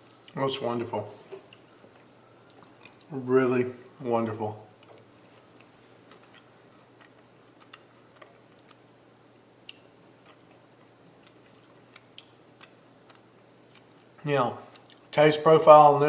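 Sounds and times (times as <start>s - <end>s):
low steady hum: 0.0s - 16.0s
faint chewing mouth clicks: 1.3s - 3.1s, 4.8s - 8.8s, 9.6s - 14.1s, 14.7s - 15.1s.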